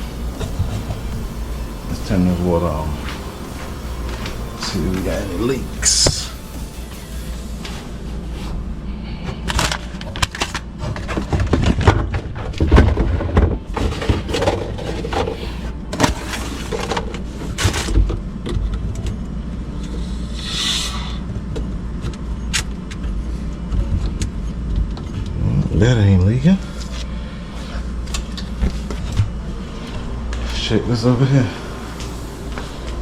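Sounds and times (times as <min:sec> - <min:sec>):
water hiss: 0:00.0 - 0:07.6.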